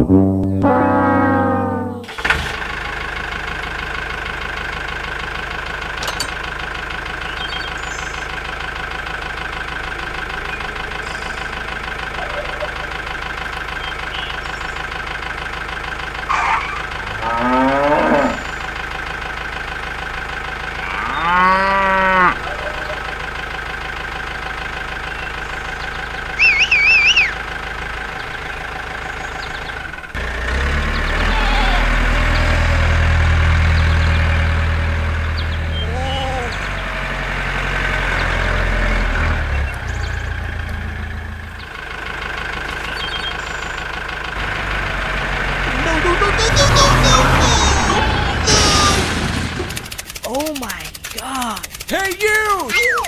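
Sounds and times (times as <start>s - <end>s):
high warbling chirp: 0.2s - 2.1s, 25.0s - 27.4s
cow mooing: 0.6s - 2.1s, 16.3s - 18.4s, 20.7s - 22.8s
tractor engine idling: 0.6s - 53.0s.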